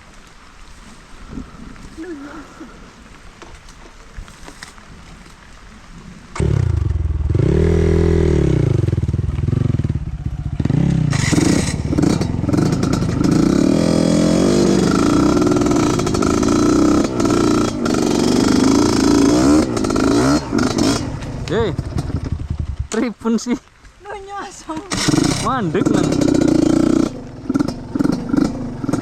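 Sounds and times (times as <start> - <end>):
motorcycle engine revving: 6.3 - 23.2, 24.7 - 29.0.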